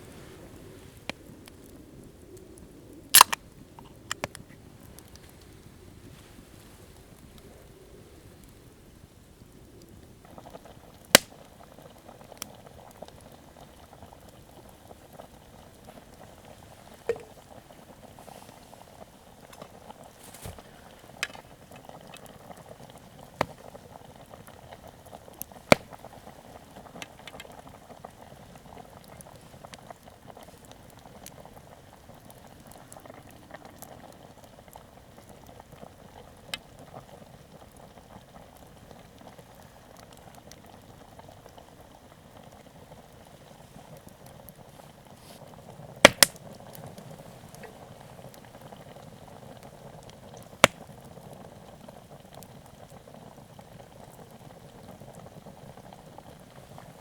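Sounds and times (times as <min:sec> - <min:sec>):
campfire pops: 0:00.0 - 0:07.7, 0:08.4 - 0:57.0
pot bubbling: 0:10.2 - 0:57.0.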